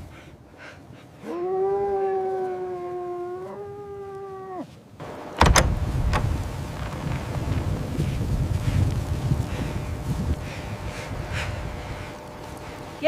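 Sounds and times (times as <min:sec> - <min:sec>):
animal's long steady call: 0:00.6 - 0:04.8
loud noisy rush with clicks: 0:05.1 - 0:11.1.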